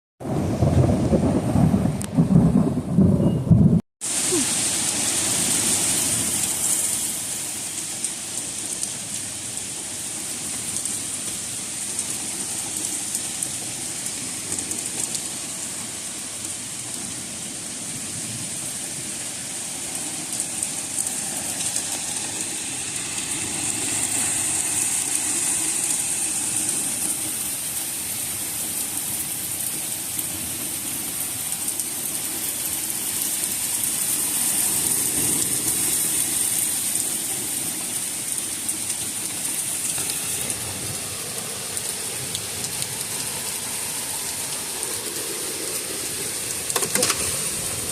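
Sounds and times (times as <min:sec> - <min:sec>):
thunder rumble: 0:00.2 - 0:06.4
heavy rain: 0:00.2 - 0:47.9.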